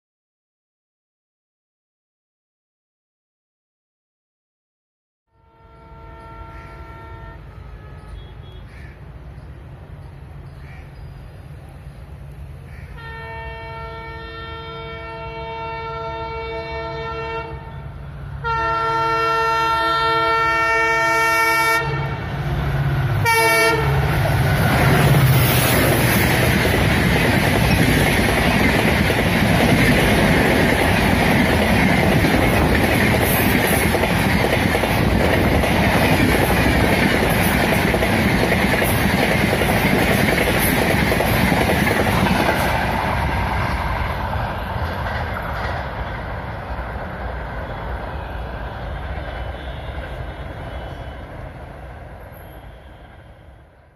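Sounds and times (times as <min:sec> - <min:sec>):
locomotive horn blasts: 0:05.3 - 0:08.7, 0:13.0 - 0:22.2, 0:23.2 - 0:24.1
train rushing past: 0:05.6 - 0:53.9.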